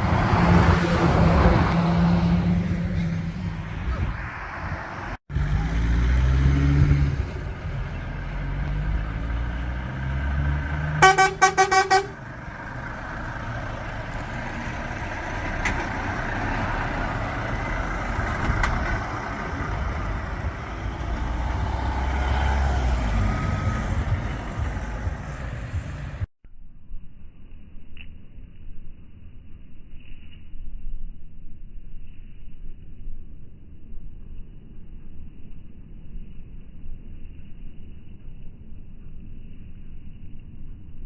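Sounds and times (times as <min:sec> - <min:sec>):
truck engine rumbling: 0:00.0 - 0:26.3
horn short toots: 0:10.9 - 0:12.3.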